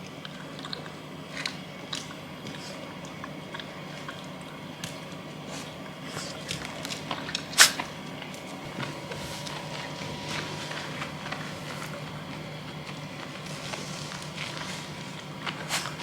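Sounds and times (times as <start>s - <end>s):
dog wet mouth noises: 0.0s - 16.0s
low hum: 8.1s - 16.0s.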